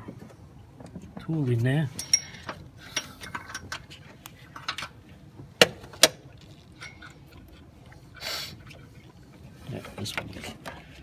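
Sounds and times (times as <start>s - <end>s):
metal hand tool clinking: 2.0s - 3.6s.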